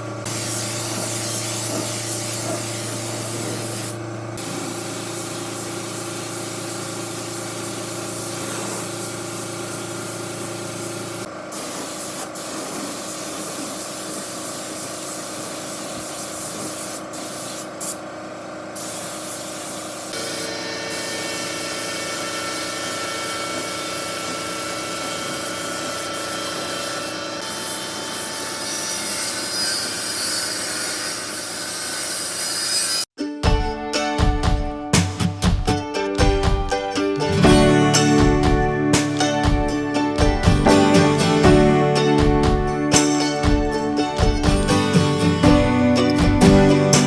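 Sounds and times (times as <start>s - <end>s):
power tool hiss and whine: 0.0s - 33.1s.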